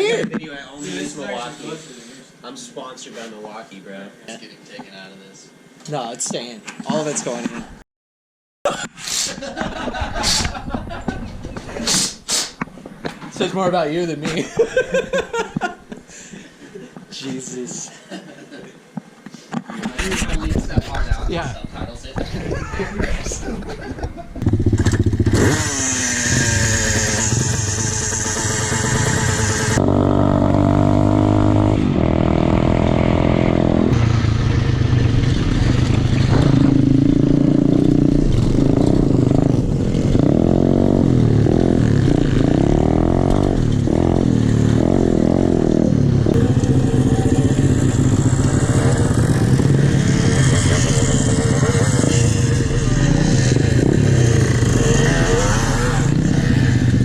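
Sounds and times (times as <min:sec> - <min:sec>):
pit bike engines revving: 0:21.9 - 0:57.0.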